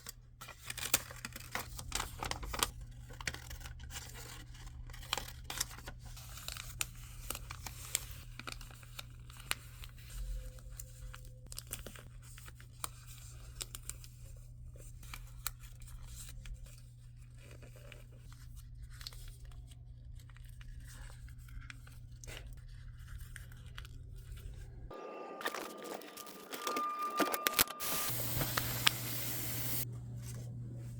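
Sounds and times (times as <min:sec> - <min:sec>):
paper folding and rustling: 0:00.0 - 0:24.7, 0:25.4 - 0:30.9
low hum: 0:24.7 - 0:30.9.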